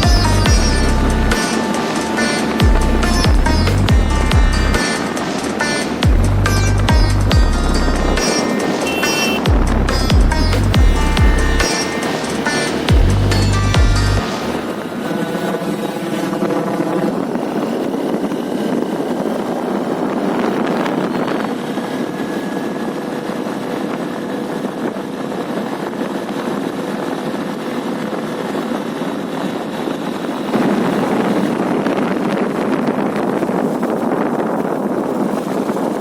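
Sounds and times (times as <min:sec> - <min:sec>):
motorcycle engine: 0:00.0 - 0:18.2
wind rushing over microphone: 0:00.0 - 0:36.0.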